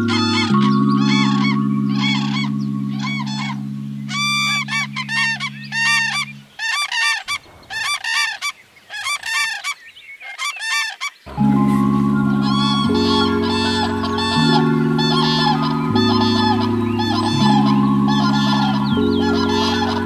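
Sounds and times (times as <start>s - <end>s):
sustained background music chord: 0.0s - 6.5s, 11.3s - 20.0s
bird honking calls: 0.0s - 20.0s.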